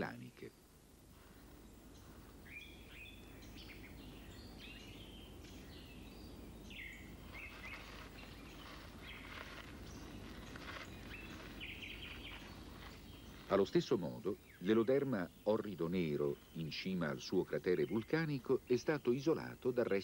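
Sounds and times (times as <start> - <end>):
steady low hiss: 0.0 - 20.0.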